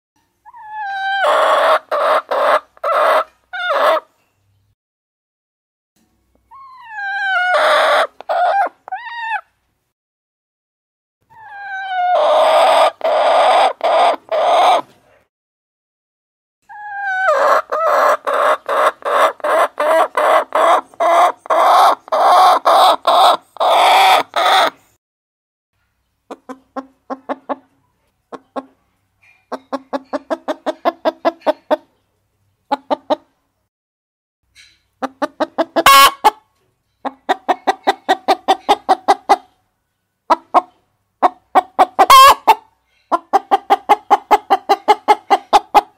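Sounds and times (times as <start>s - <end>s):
hens clucking: 0.5s - 4.1s, 6.8s - 9.4s, 11.3s - 14.9s, 16.7s - 24.8s, 26.3s - 28.8s, 29.5s - 32.0s, 32.7s - 33.3s, 35.0s - 39.6s, 40.3s - 45.9s.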